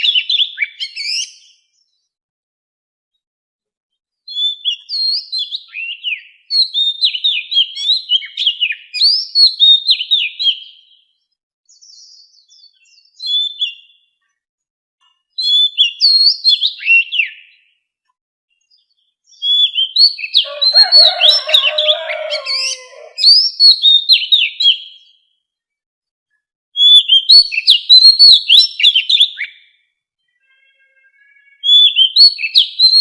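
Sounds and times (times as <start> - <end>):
bird whistling song: 0.0 - 1.6, 4.3 - 11.0, 11.7 - 14.1, 15.4 - 17.6, 19.3 - 25.2, 26.8 - 29.8, 31.5 - 33.0.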